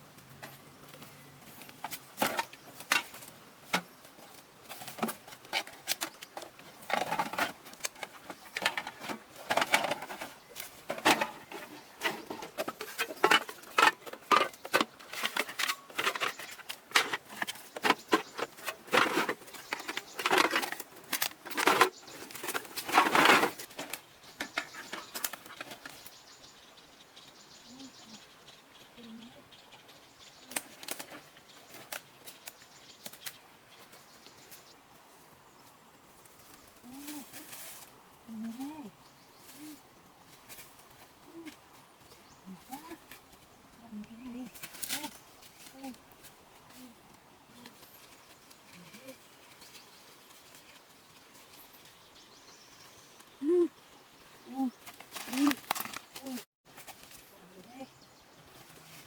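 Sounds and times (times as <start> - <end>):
clicks taps and rustles: 1.6 - 26.0, 54.8 - 57.2.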